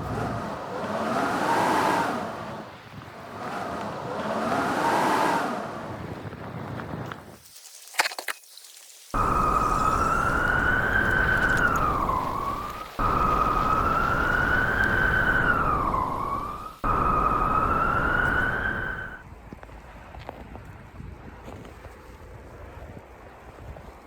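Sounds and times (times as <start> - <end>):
whistling blizzard wind: 0.0 - 7.4, 9.1 - 19.7.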